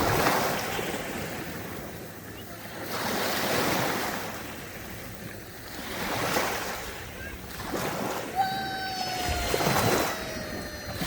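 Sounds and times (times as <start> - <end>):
sea waves washing in: 0.0 - 11.0
long held falling tone: 8.3 - 11.0.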